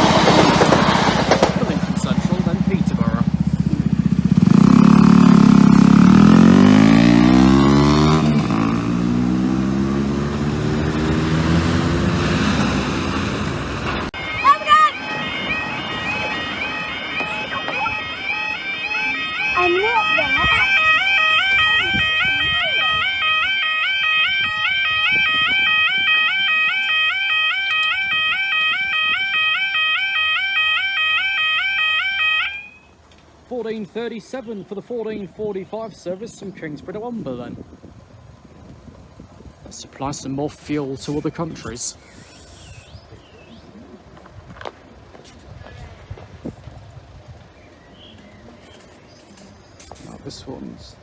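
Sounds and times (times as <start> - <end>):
vehicle engine accelerating: 0.0 - 23.0
two-tone crossing alarm: 3.3 - 33.0.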